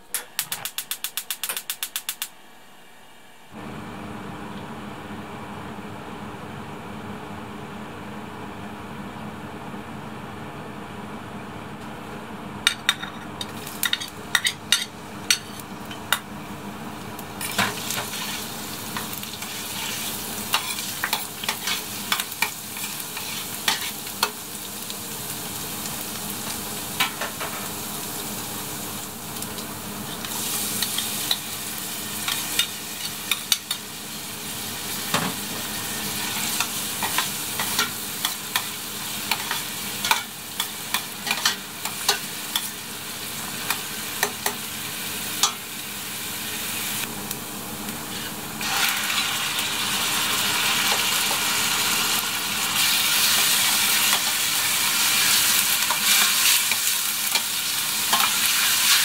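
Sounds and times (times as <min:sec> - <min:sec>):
garlic and onion sizzling in oil: 0:13.4 - 0:59.0.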